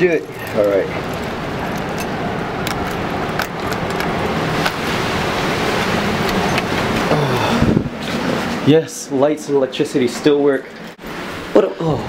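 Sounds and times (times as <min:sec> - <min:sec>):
strong wind buffeting microphone: 0:00.1 - 0:08.6.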